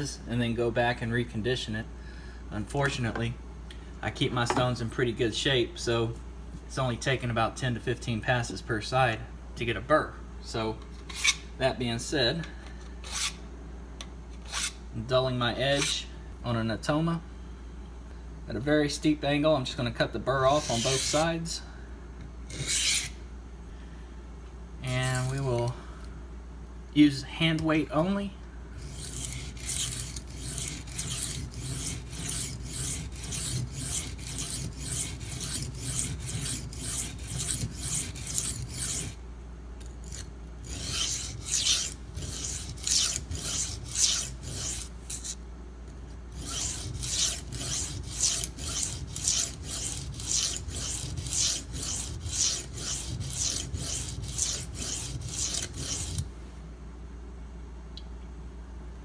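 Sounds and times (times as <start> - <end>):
knife rasping on sharpening stone: 20.5 - 21.2, 22.5 - 23.2, 28.8 - 39.2, 40.0 - 45.4, 46.4 - 56.2.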